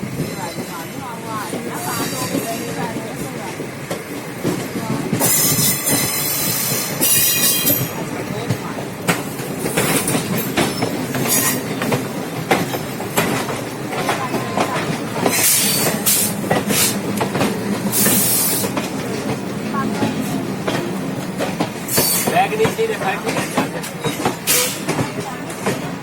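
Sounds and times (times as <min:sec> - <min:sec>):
train wheels clattering: 0:00.0 - 0:26.0
train wheels screeching: 0:04.4 - 0:08.3, 0:09.1 - 0:19.2, 0:20.0 - 0:25.9.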